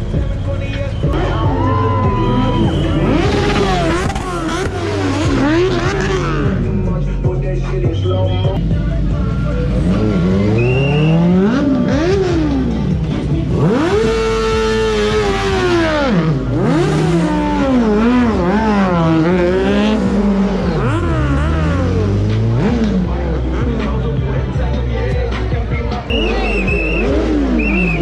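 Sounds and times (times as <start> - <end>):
car engine revving: 0.0 - 28.0
low engine hum: 0.0 - 28.0.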